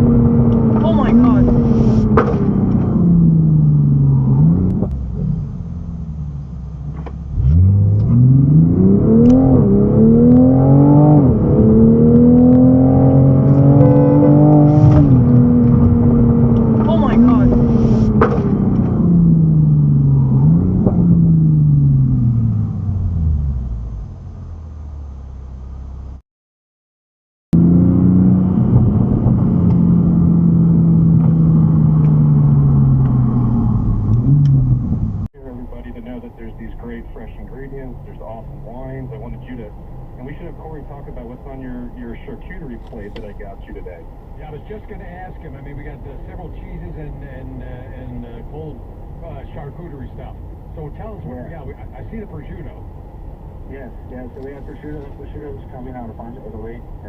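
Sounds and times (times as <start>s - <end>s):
car engine accelerating: 0.0s - 26.2s, 27.5s - 57.0s
vehicle engine running: 0.0s - 26.2s.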